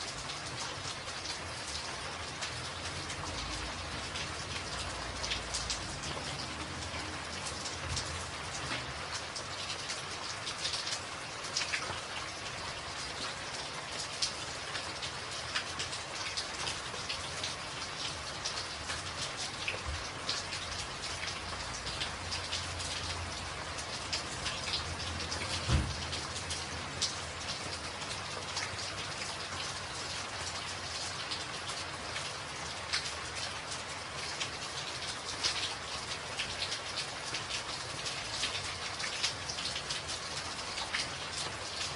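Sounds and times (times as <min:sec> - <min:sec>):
rain on a tin roof: 0:00.0 - 0:41.9
low thump: 0:25.7 - 0:26.0.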